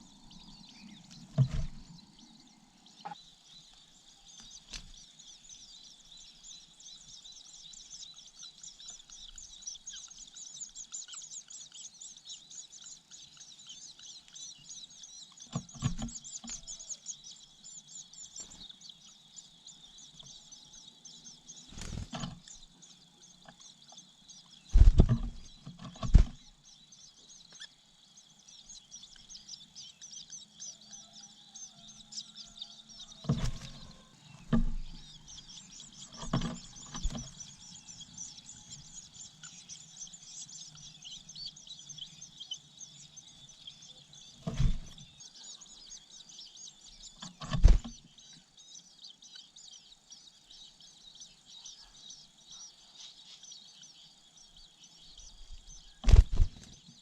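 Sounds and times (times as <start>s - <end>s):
high-pitched bird chirping: 5.7s - 56.7s
loud thumps: 24.8s - 26.4s.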